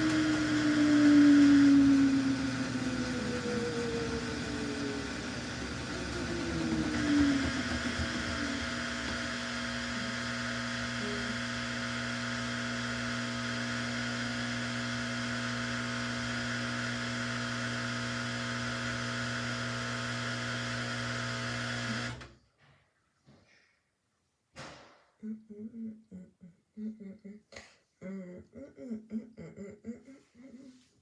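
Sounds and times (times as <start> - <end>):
washing machine humming: 0.0 - 22.3.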